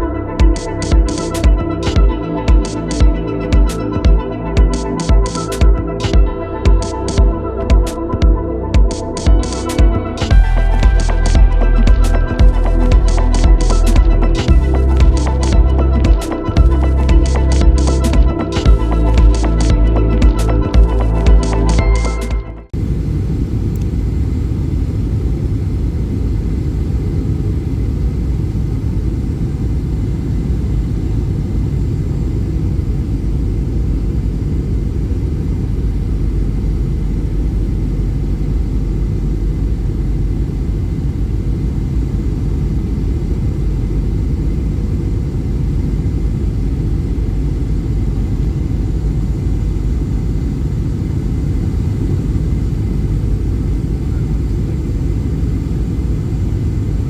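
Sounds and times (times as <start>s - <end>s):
jet engines cabin rumble: 22.7s - 57.0s.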